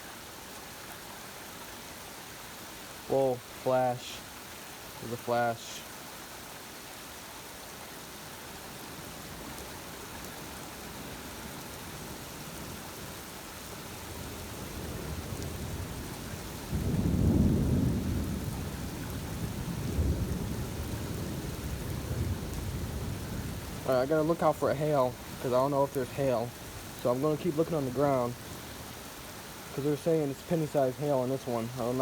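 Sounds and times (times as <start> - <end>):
steady rain: 0.0 - 32.0
thunder rumbling: 14.2 - 28.7.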